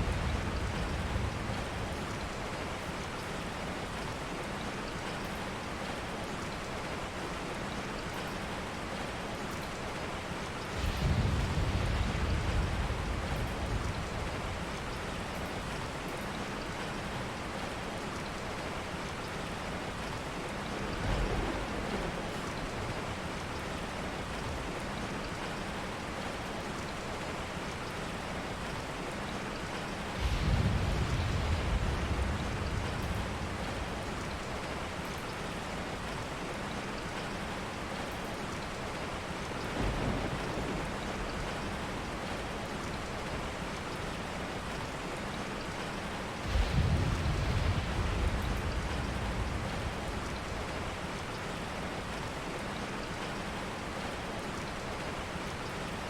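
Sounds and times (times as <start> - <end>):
distant thunder rumbling: 0.0 - 2.5, 10.7 - 15.6, 20.6 - 24.7, 30.1 - 35.0, 39.6 - 43.6, 46.4 - 51.4
heavy rain: 0.0 - 56.0.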